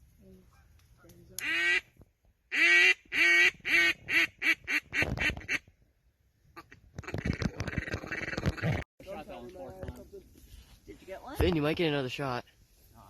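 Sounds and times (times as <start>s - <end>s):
duck call quacks: 1.4s - 1.8s, 2.5s - 5.6s.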